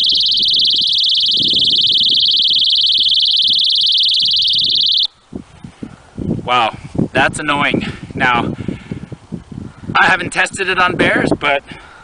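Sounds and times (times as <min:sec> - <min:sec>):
personal alarm shrieking: 0:00.0 - 0:05.2.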